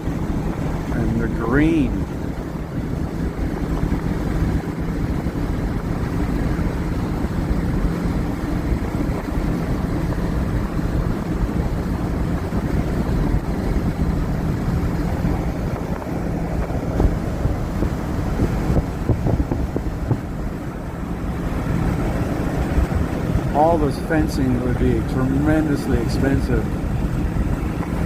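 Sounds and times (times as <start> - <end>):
road and engine drone: 0.0 - 28.0
tyre and wind noise: 1.9 - 23.8.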